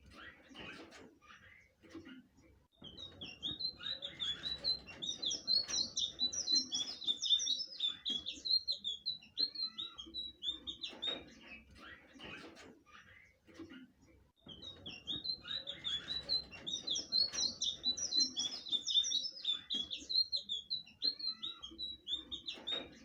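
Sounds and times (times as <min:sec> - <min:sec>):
bird chirping song: 0:00.0 - 0:23.0.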